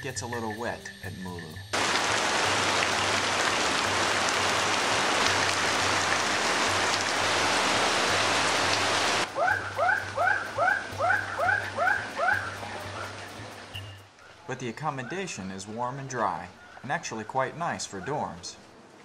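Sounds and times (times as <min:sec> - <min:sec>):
heavy rain pouring: 0:01.7 - 0:13.8.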